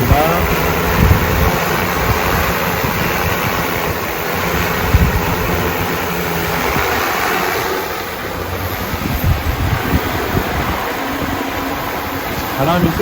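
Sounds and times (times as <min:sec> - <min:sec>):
drone propellers whirring: 0:00.0 - 0:13.0
wind buffeting microphone: 0:00.0 - 0:13.0.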